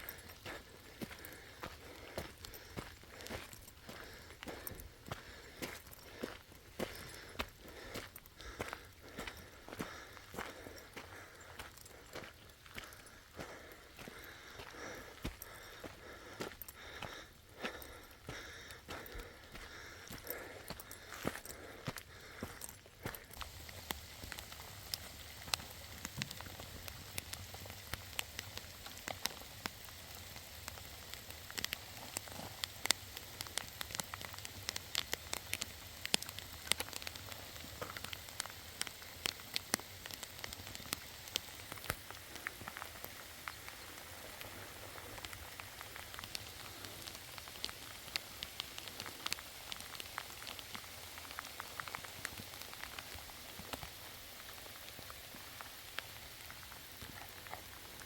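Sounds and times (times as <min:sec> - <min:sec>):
raindrops ticking and splatting: 0:00.0 - 0:58.0
steady rain falling: 0:23.0 - 0:58.0.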